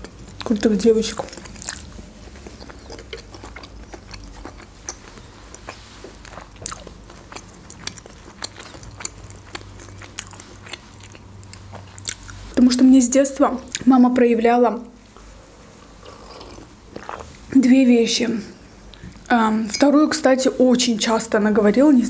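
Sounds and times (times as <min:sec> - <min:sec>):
mouth chewing food: 0:00.0 - 0:12.7, 0:15.2 - 0:17.5
faint low hum: 0:00.0 - 0:22.0.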